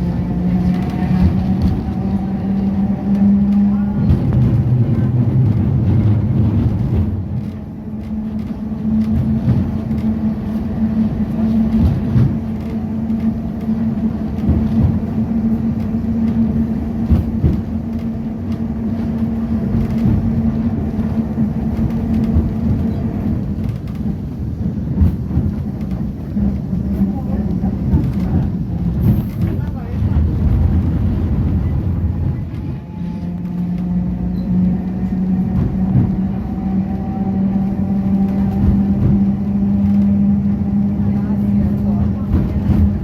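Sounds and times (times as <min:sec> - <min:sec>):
electric tram hum: 0:00.0 - 0:43.0
knocks and rattles from track: 0:00.0 - 0:43.0
tram wheels rumbling: 0:00.0 - 0:43.0.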